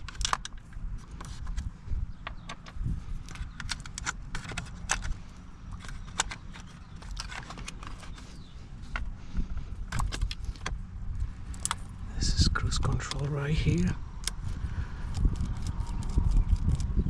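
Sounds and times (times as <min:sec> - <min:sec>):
hands handling plastic trim: 0:02.4 - 0:10.8.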